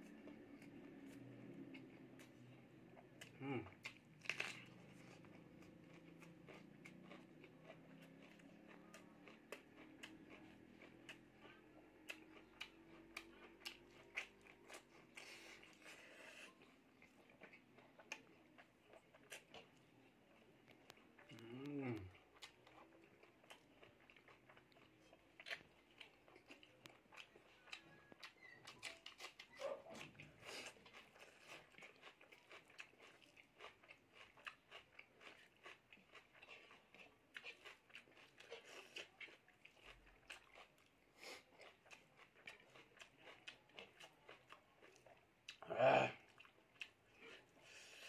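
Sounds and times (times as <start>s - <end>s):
person chewing: 0.1s - 48.0s.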